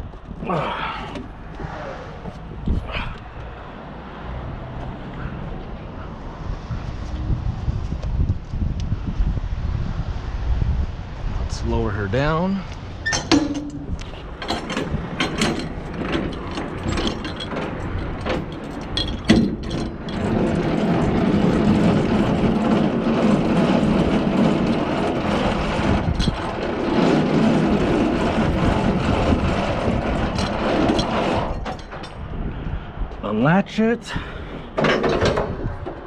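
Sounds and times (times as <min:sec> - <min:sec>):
landing gear crank clicking and grinding: 0:13.0 - 0:32.2
clicks and knocks: 0:13.1 - 0:32.2, 0:34.8 - 0:36.0.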